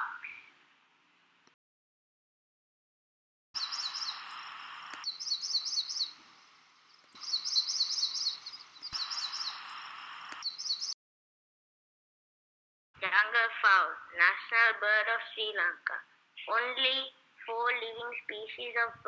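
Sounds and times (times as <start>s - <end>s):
background hiss: 0.0s - 1.6s, 3.6s - 11.0s, 13.0s - 19.0s
high bird chirping song: 3.6s - 11.0s.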